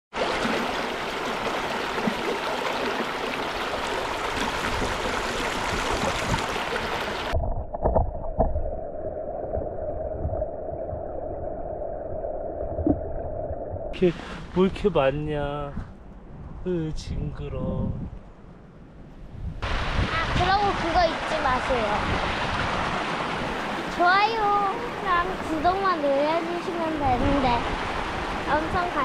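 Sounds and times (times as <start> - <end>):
stream water rushing: 0.1 - 7.4, 19.6 - 29.0.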